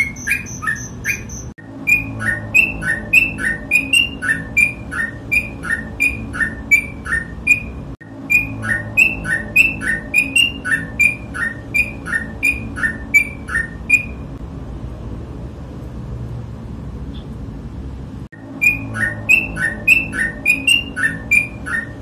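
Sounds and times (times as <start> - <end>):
bulbul two-note whistled song: 0.0 - 14.2, 18.6 - 22.0.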